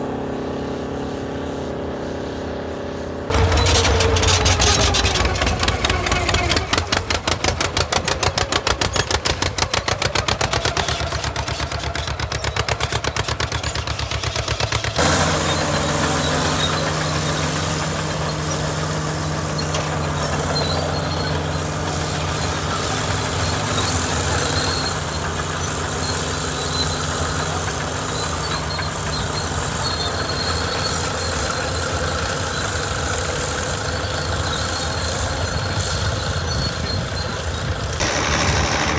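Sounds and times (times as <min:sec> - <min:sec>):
tractor engines running: 0:00.0 - 0:38.9.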